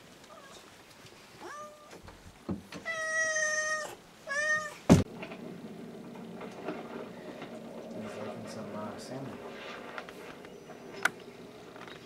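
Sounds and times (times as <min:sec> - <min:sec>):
high animal cries: 0:02.8 - 0:04.8
loud thump: 0:04.9 - 0:05.1.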